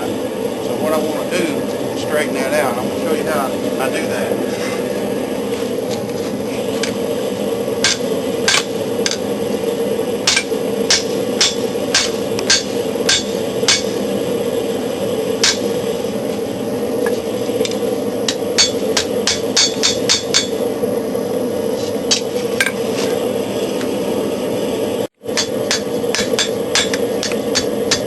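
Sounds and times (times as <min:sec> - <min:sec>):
gas forge rushing: 0:00.0 - 0:28.0
hammer striking steel on anvil: 0:07.8 - 0:09.2, 0:10.3 - 0:14.0, 0:15.4 - 0:15.7, 0:18.3 - 0:20.6, 0:25.3 - 0:28.0.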